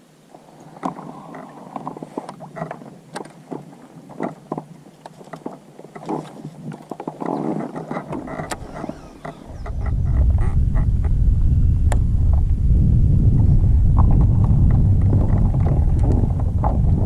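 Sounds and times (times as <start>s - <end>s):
gear knocking against kayak hull: 0.8s - 11.1s, 14.0s - 17.0s
wind rumble on microphone: 7.4s - 17.0s.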